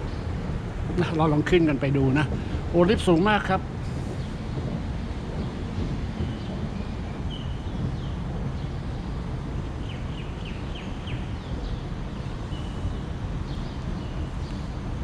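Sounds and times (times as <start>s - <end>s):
steady low rumble: 0.0s - 15.0s
small birds chirping: 5.0s - 14.8s.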